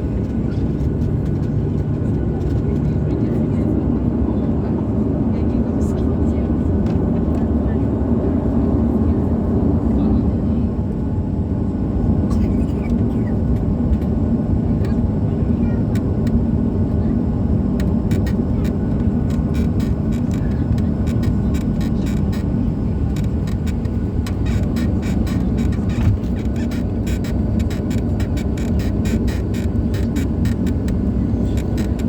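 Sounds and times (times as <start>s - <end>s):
airliner cabin rumble: 0.0s - 32.0s
light clicks and rattles: 0.1s - 3.7s, 17.8s - 32.0s.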